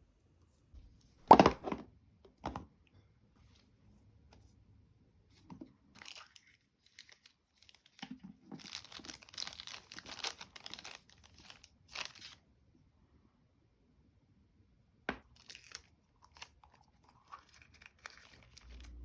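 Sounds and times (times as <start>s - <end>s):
packaging crinkling and tearing: 5.9s - 12.4s, 15.3s - 19.0s.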